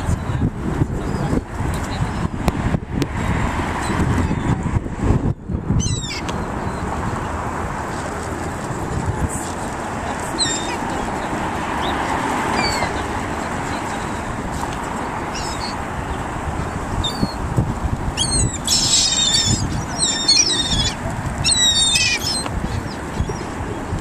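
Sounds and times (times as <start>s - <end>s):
rushing background noise: 0.0s - 24.0s
seagulls squawking: 5.8s - 6.9s, 10.3s - 14.3s, 15.2s - 15.8s, 17.0s - 17.4s, 18.2s - 24.0s.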